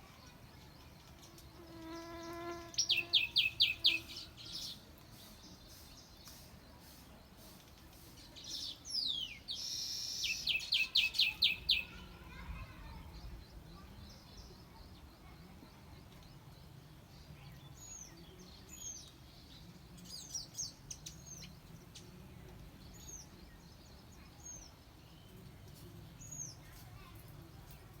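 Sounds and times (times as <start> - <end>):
high bird chirps: 1.2 - 4.8, 5.7 - 12.1.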